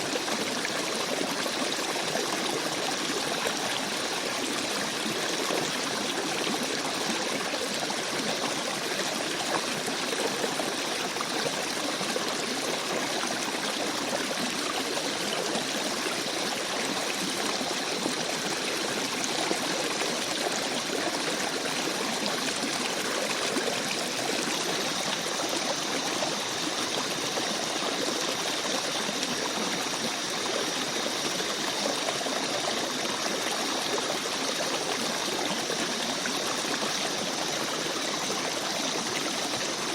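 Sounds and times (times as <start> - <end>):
stream babbling: 11.9 - 39.9.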